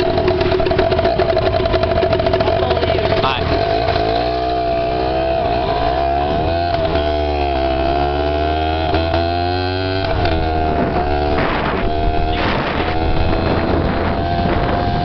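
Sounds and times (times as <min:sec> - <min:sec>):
dirt bike engine: 0:00.0 - 0:15.0
wind buffeting microphone: 0:08.7 - 0:15.0.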